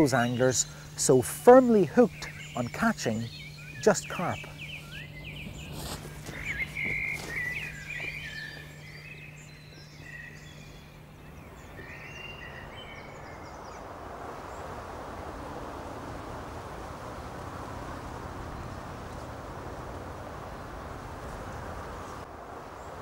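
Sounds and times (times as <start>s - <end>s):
small birds chirping: 0.0s - 14.8s, 15.8s - 23.0s.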